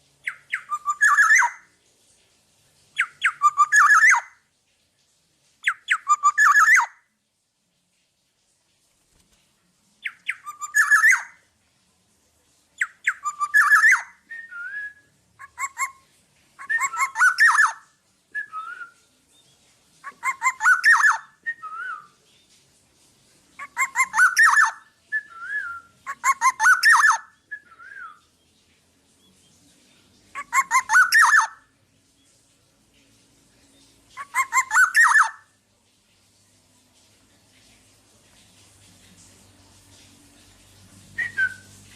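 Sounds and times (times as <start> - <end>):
slurred bird whistles: 10.1 - 11.3, 13.0 - 16.0, 16.6 - 17.8, 18.4 - 19.0, 20.1 - 22.2, 23.6 - 28.2, 41.2 - 41.8.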